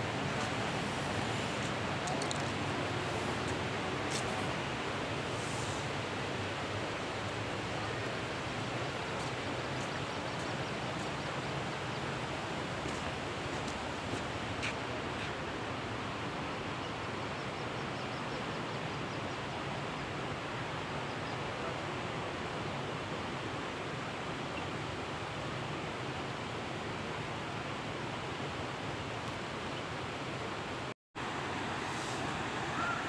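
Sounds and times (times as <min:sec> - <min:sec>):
steady rushing noise: 0:00.0 - 0:15.1.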